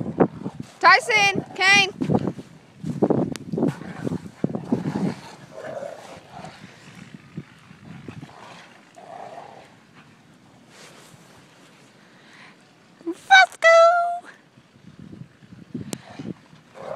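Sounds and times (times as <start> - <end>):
dogs growling: 3.7 - 10.3, 16.0 - 16.9.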